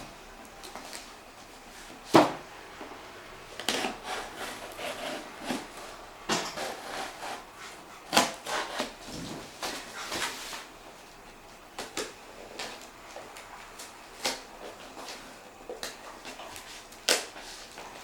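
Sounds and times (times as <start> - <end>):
cardboard box rubbing and scraping: 3.7 - 7.8, 8.4 - 10.7.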